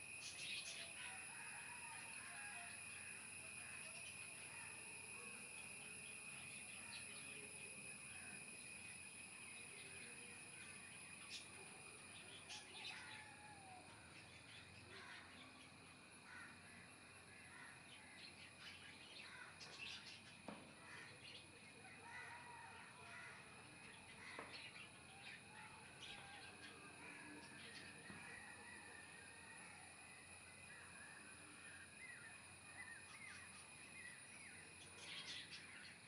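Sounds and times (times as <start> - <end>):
steady high-pitched drone: 2.2 - 16.0.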